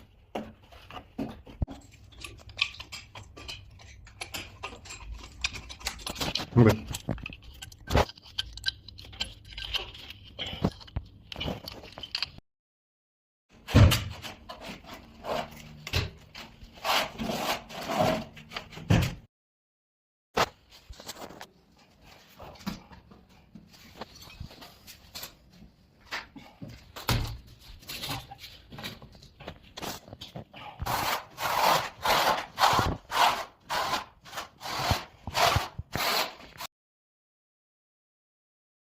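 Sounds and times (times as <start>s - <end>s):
hand tool scraping a wall: 14.2s - 18.8s, 29.8s - 36.7s.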